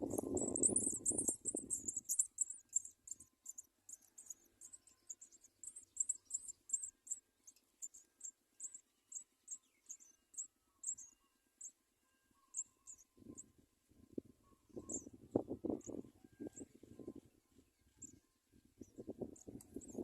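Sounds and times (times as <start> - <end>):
nestlings chirping: 0.0 - 11.7.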